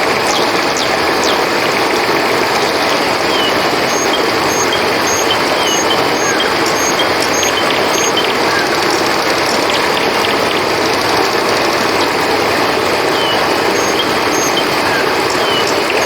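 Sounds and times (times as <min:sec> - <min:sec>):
river flowing: 0:00.0 - 0:16.0
crickets chirping: 0:02.9 - 0:09.8, 0:12.6 - 0:16.0.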